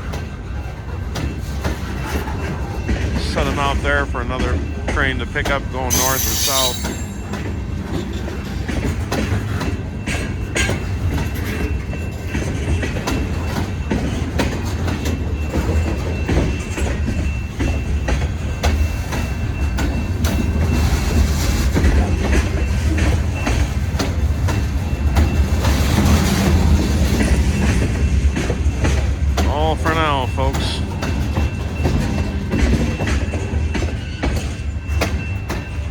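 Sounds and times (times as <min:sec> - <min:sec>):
low train rumble: 0:00.0 - 0:35.9
train wheels clacking over joints: 0:00.0 - 0:35.9
faint wheel squeal: 0:05.9 - 0:07.3.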